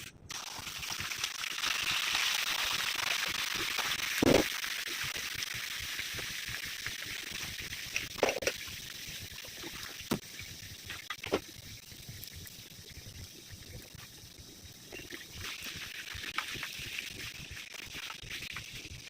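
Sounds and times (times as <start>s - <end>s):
food sizzling in a pan: 0.3s - 19.0s
sharp pops: 3.6s - 4.6s.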